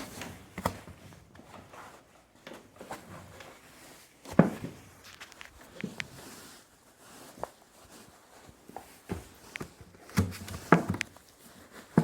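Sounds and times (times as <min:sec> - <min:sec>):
light knocks and thumps: 0:09.1 - 0:11.2.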